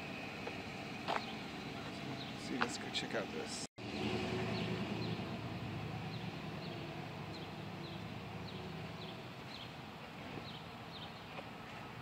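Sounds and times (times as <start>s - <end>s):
bird chirping: 3.9s - 11.4s.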